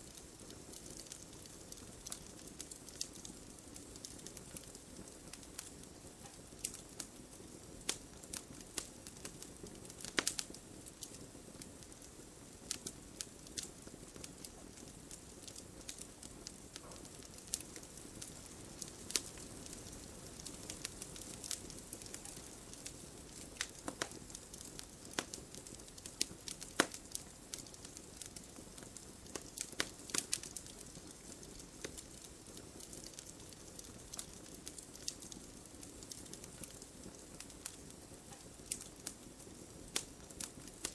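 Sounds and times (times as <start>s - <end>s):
campfire crackling and popping: 0.0s - 40.9s
fire hissing: 7.6s - 35.4s.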